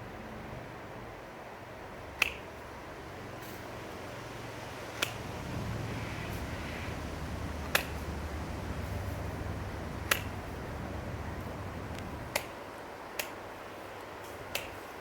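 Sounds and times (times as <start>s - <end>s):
twigs snapping: 2.2s - 2.4s, 5.0s - 5.2s, 7.6s - 8.1s, 10.0s - 10.5s, 11.9s - 12.6s, 13.2s - 13.4s, 14.5s - 14.8s
wind rumble on microphone: 2.6s - 12.7s.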